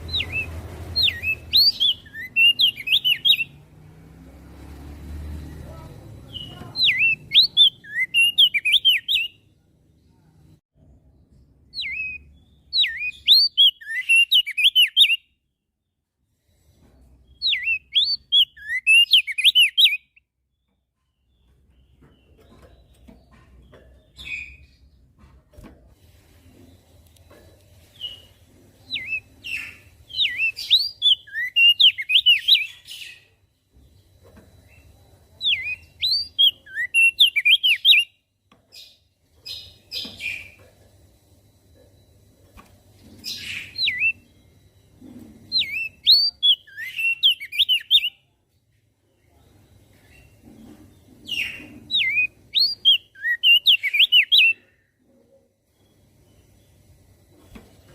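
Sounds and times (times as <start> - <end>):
bird singing whistled notes: 0.0 - 3.6, 6.2 - 9.4, 11.7 - 15.4, 17.3 - 20.3, 28.0 - 33.3, 34.7 - 38.2, 43.2 - 44.6, 45.5 - 48.3, 51.3 - 54.7.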